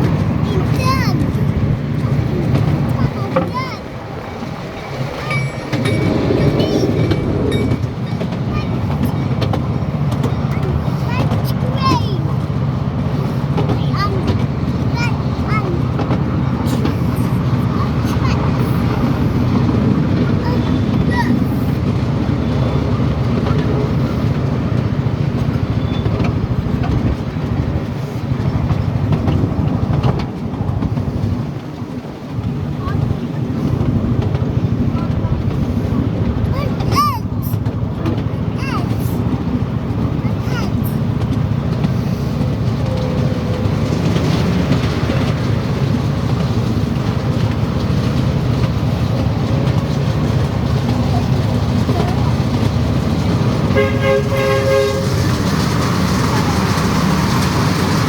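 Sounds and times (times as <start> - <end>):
train rumbling on track: 0.0 - 58.0
wheels ticking on rails: 0.0 - 58.0.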